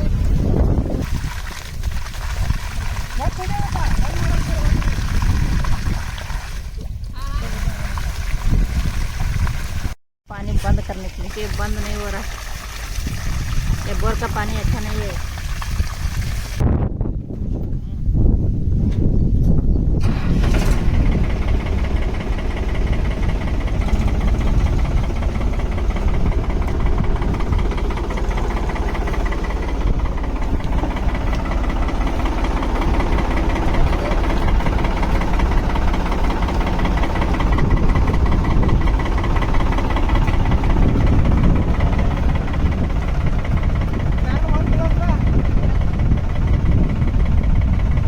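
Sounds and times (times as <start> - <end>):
engine idling with knocking: 1.8 - 6.0, 13.3 - 15.4, 20.0 - 48.0.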